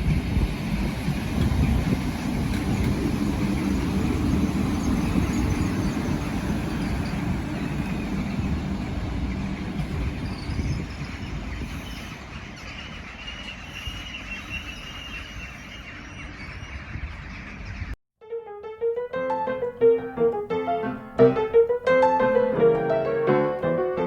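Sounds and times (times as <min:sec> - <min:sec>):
train rumbling along track: 0:00.0 - 0:18.0.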